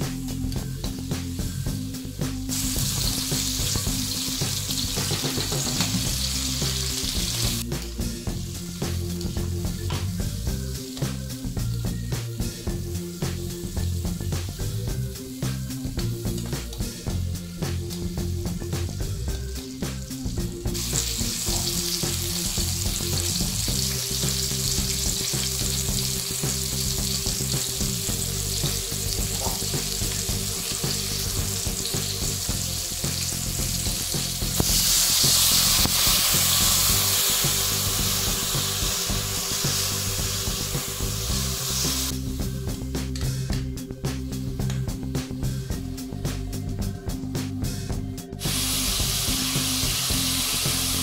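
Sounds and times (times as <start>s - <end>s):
background music: 0.0s - 51.0s
food sizzling in hot oil: 0.3s - 42.4s, 48.4s - 51.0s.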